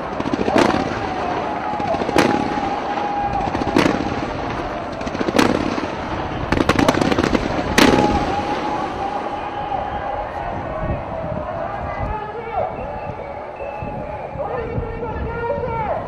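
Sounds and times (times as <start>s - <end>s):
fireworks bangs: 0.0s - 12.5s
whistling tone: 11.9s - 14.8s.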